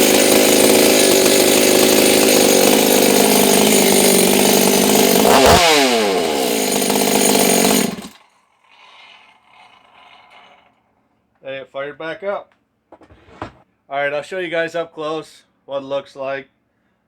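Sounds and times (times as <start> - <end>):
chainsaw engine running: 0.0 - 10.7.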